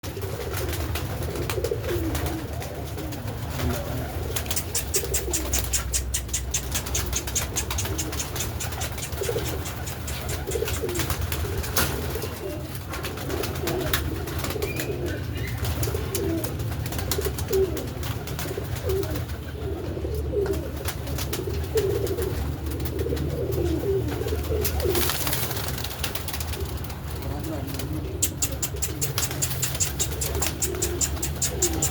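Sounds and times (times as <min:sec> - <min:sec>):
pigeons cooing: 0:00.0 - 0:31.9
sharp clicks and ticks: 0:04.4 - 0:11.1, 0:28.2 - 0:31.9.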